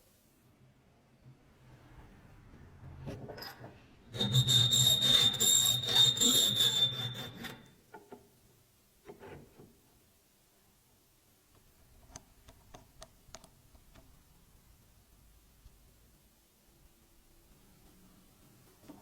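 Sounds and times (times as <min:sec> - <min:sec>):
high squeal: 0:04.1 - 0:07.7
filing against a workpiece: 0:04.2 - 0:07.7.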